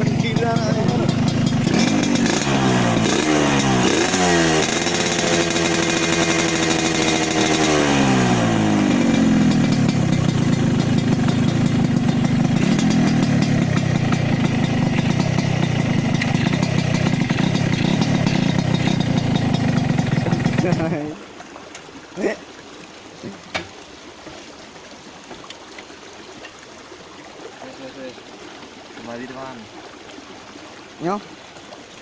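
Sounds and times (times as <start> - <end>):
motorcycle engine revving and idling: 0.0 - 21.2.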